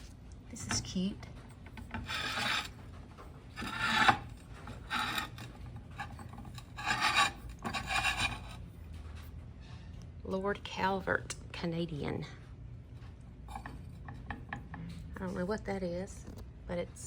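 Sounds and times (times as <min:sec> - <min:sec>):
rasping rubbing strokes: 0:01.9 - 0:02.8, 0:03.6 - 0:05.4, 0:06.6 - 0:08.5.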